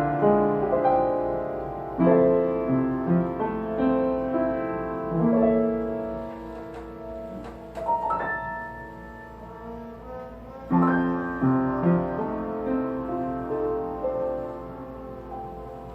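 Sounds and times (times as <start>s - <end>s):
solo piano jazz ballad: 0.0s - 15.9s.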